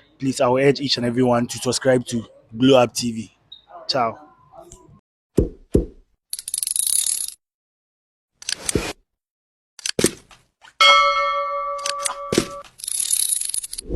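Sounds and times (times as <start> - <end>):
bell-like chime ringing: 10.8 - 12.6.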